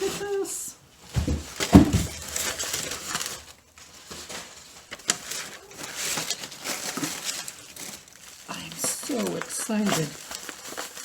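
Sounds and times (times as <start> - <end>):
packing material rustling: 0.0 - 11.0.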